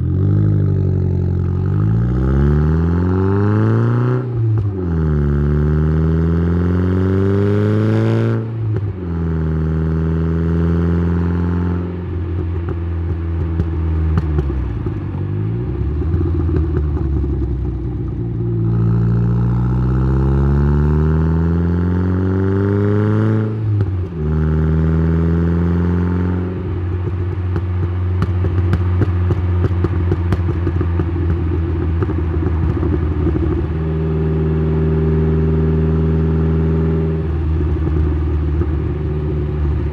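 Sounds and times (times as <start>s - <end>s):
exhaust crackling: 0.0s - 5.5s, 12.0s - 21.3s, 23.4s - 39.9s
turbo car engine accelerating: 0.0s - 39.9s.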